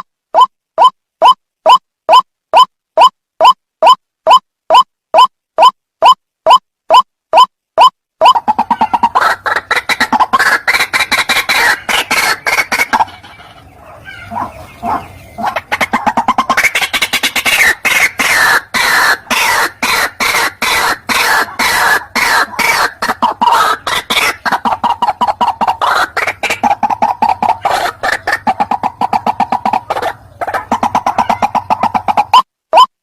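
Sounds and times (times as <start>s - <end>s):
waterhen calling harsh notes: 8.2s - 32.9s.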